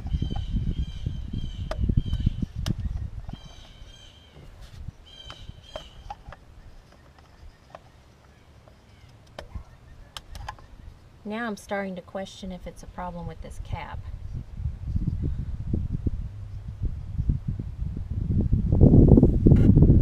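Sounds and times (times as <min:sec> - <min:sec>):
low rumble: 0:13.4 - 0:20.0.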